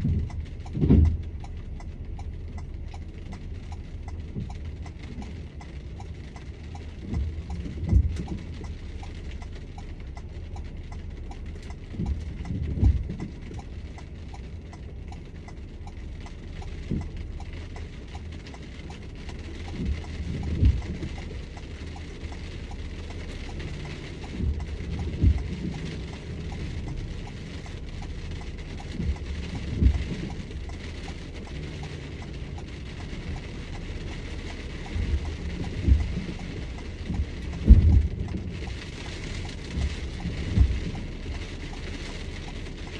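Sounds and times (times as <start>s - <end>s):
rain on a vehicle: 0.0s - 42.9s
steady rumble: 0.0s - 42.9s
low thud: 37.2s - 38.3s.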